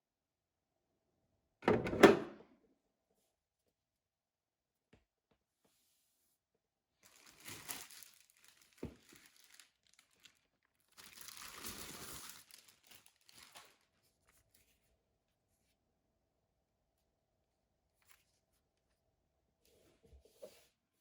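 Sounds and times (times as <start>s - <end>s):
crinkling and rustling: 7.0s - 14.9s.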